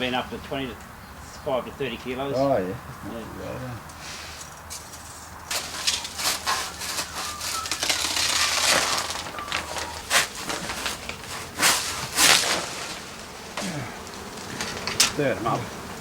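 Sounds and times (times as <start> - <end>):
plastic bag crinkling: 5.0 - 15.0.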